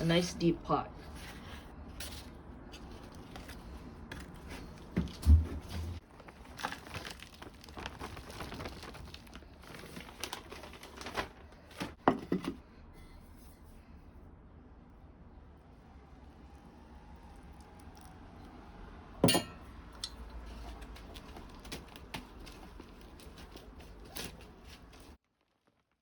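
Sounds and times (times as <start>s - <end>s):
plastic pots crinkling and rustling: 0.0s - 12.6s, 19.9s - 26.0s.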